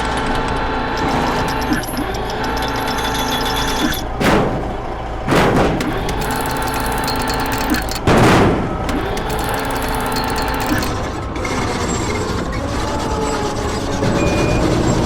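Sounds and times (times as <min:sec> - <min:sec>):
loud noisy bursts: 0:03.8 - 0:11.0
cartoon engine humming: 0:05.8 - 0:08.1, 0:08.7 - 0:11.1.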